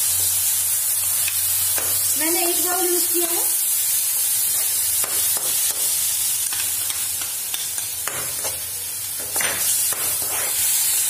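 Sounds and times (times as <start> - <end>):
food sizzling in a pan: 0.0 - 11.0
steel spoon scraping pan: 9.4 - 11.0.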